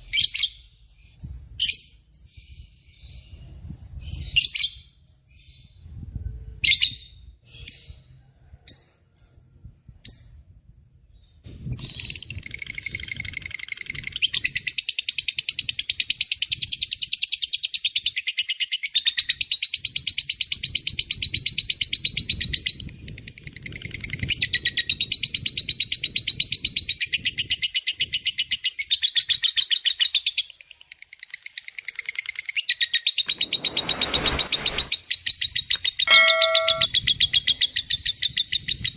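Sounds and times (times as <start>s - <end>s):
lovebird chirps: 36.1s - 36.9s
lovebird rattling trill: 36.1s - 36.9s.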